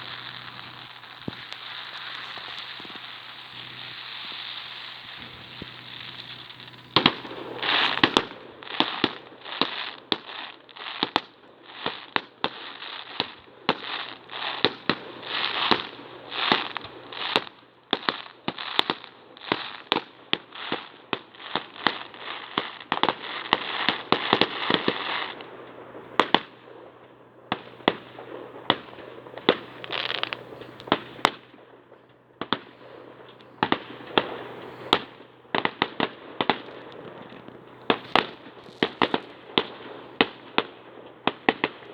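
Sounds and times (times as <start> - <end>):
fireworks bangs: 0.0 - 9.3, 13.7 - 17.4, 23.0 - 41.9
fireworks crackling: 0.0 - 19.8, 20.4 - 41.9.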